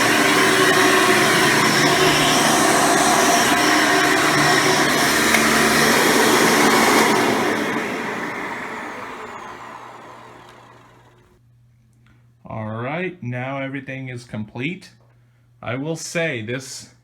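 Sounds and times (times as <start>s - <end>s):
vacuum cleaner running: 0.0s - 11.3s
motor winding down whine: 0.0s - 11.4s.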